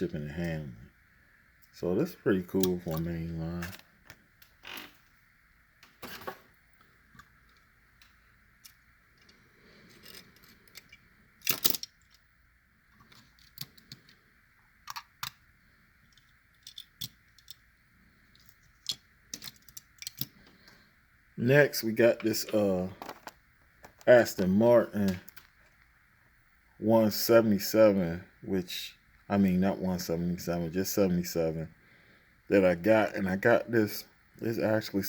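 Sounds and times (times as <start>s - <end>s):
faint high whine: 0.0s - 35.0s
toy cars and packaging clicking: 9.9s - 12.2s, 13.0s - 14.2s, 14.8s - 15.4s, 16.1s - 17.6s, 18.3s - 20.5s.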